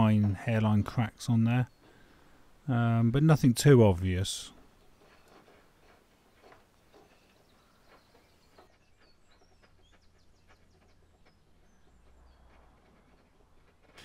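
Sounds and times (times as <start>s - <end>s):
faint high bird chirps: 6.3s - 13.3s.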